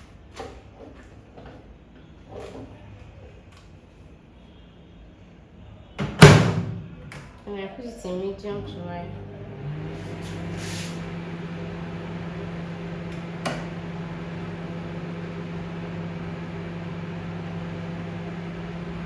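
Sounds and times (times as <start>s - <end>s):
microwave oven humming: 8.4s - 19.0s.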